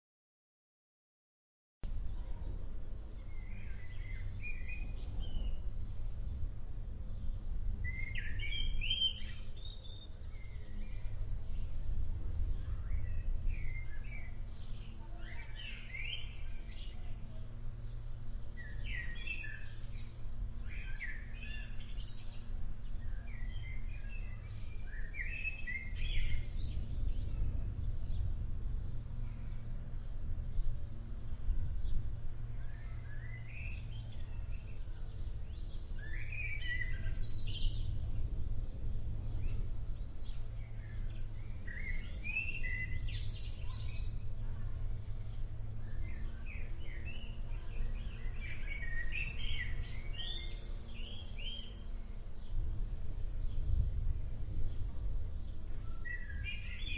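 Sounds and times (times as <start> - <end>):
songbirds chirping: 1.8 - 56.9
low rumble: 21.5 - 48.3, 52.0 - 56.9.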